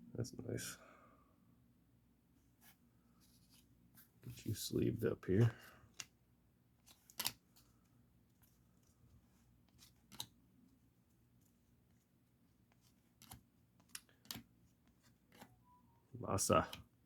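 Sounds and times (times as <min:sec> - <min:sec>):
card sleeve clicks: 0:06.9 - 0:07.4.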